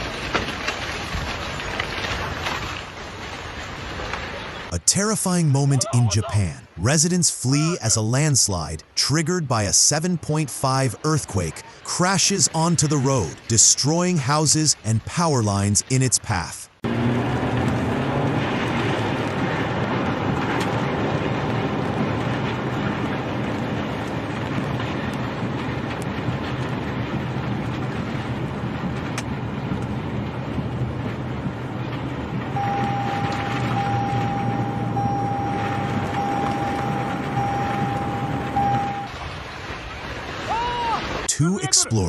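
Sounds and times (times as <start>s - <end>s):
landslide debris rumbling: 0.0s - 42.0s
steady high alarm tone: 32.5s - 39.1s.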